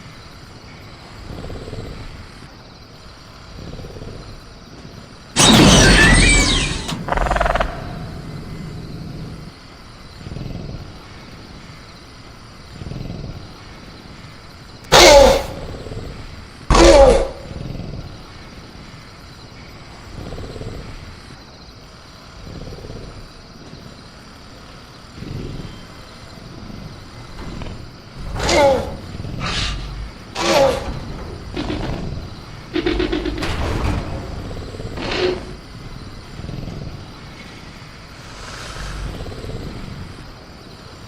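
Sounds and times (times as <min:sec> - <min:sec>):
jungle ambience: 0:00.0 - 0:41.0
soft growls: 0:01.0 - 0:02.5, 0:03.4 - 0:05.1, 0:06.5 - 0:11.3, 0:19.9 - 0:21.4, 0:22.1 - 0:33.6, 0:34.4 - 0:41.0.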